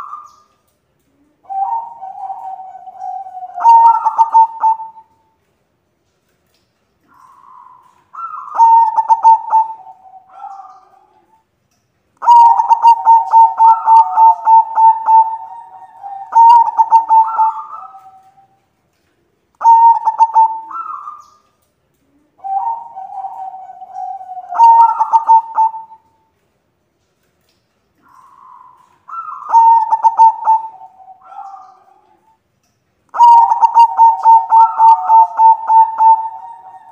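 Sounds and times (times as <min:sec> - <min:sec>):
doves cooing: 0:00.0 - 0:05.2, 0:07.0 - 0:11.4, 0:12.2 - 0:18.6, 0:19.6 - 0:21.4, 0:22.0 - 0:26.1, 0:28.0 - 0:32.3, 0:33.1 - 0:36.9.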